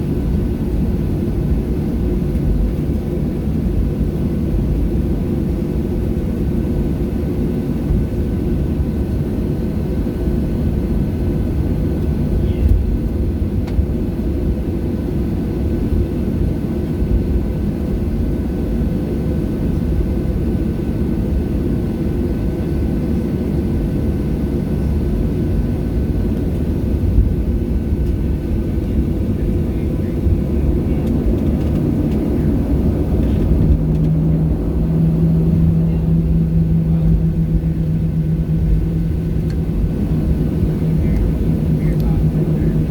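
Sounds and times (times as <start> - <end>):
jet engines deep rumble: 0.0 - 42.9
airflow noise: 26.6 - 42.9.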